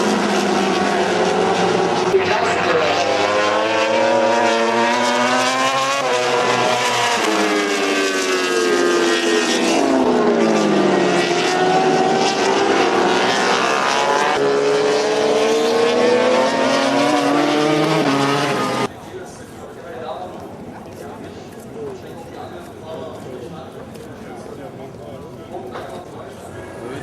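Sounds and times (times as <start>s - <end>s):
racing motorcycle engines: 0.0s - 19.4s.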